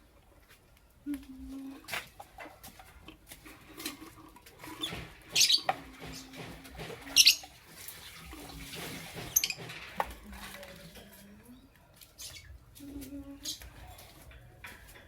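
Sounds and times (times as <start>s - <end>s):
lovebirds chirping: 4.7s - 6.4s, 7.1s - 7.6s, 11.0s - 13.7s.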